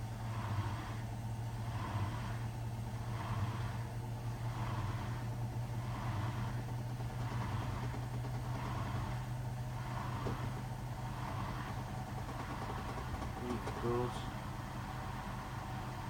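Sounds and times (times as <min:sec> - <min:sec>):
drain pump humming: 0:05.3 - 0:16.0.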